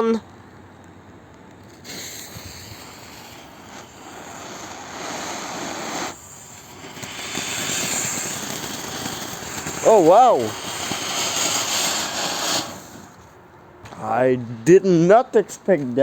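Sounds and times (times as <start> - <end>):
fountain firework hissing: 1.5 - 13.4.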